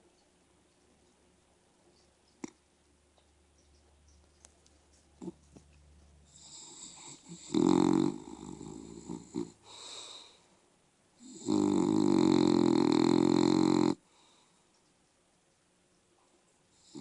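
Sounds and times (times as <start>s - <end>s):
dog snoring: 6.3s - 10.2s, 11.2s - 14.0s, 16.8s - 17.0s.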